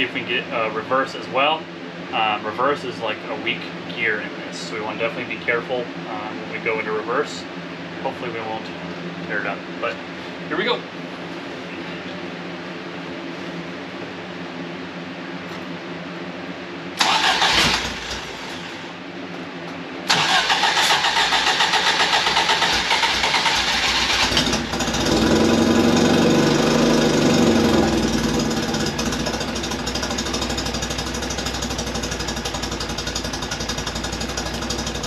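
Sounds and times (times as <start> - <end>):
engine cranking: 17.0 - 18.5, 20.1 - 25.1
engine revving and idling: 20.1 - 35.0.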